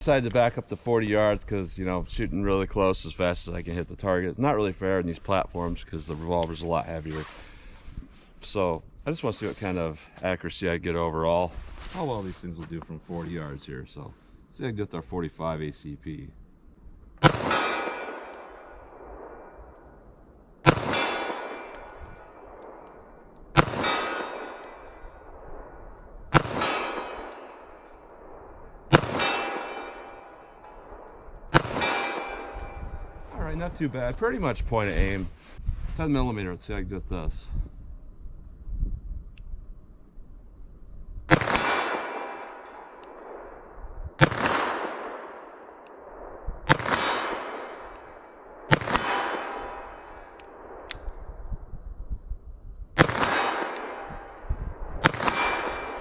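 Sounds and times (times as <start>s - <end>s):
pistol shots: 17.2s - 19.6s, 20.6s - 25.3s, 26.3s - 28.2s, 28.9s - 33.1s, 41.3s - 43.6s, 44.2s - 51.0s, 53.0s - 56.0s.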